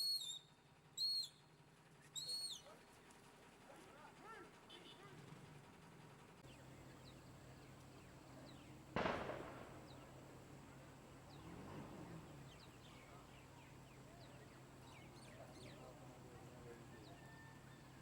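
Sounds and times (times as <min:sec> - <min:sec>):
small birds chirping: 0:06.4 - 0:18.0
sharp bang: 0:09.0 - 0:10.2.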